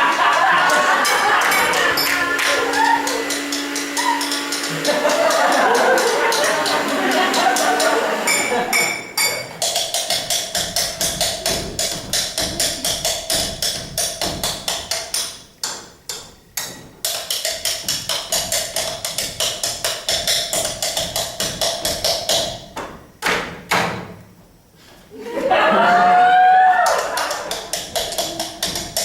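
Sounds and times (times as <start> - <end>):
steady held tone: 0.0 - 15.4
rhythmic tapping on cups and cutlery: 0.0 - 23.9, 26.8 - 29.0.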